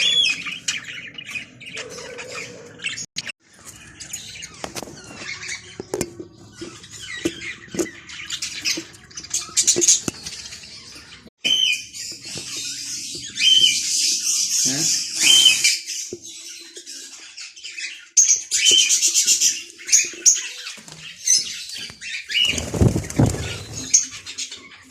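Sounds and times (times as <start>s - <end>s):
budgerigars squawking and chattering: 0.0s - 3.1s, 3.7s - 24.9s
rustle of wings flapping: 22.5s - 24.0s.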